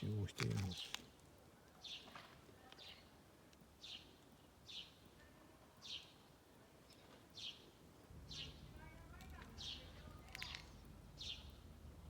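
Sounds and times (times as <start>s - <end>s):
faint outdoor hiss: 0.0s - 12.0s
small bird chirping: 8.3s - 8.7s, 9.6s - 11.6s.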